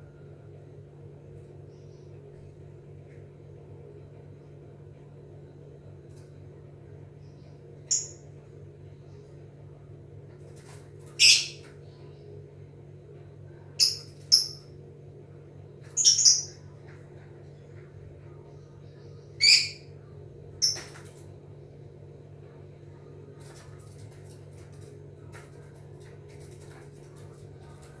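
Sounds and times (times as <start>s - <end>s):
low steady hum: 0.0s - 28.0s
lovebird high-pitched calls: 7.9s - 8.2s, 11.2s - 11.7s, 13.8s - 14.7s, 15.9s - 16.6s, 19.4s - 19.9s, 20.6s - 20.9s.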